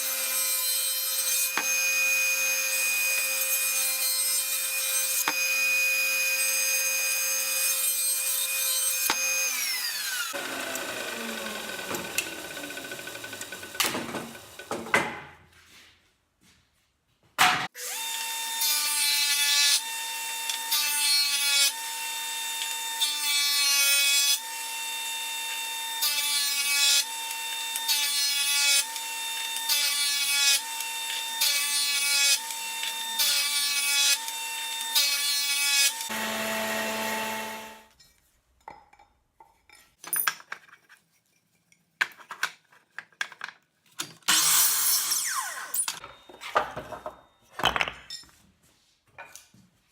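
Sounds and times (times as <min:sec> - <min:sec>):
power tool motor hum: 0:09.9 - 0:14.6, 0:36.0 - 0:37.9.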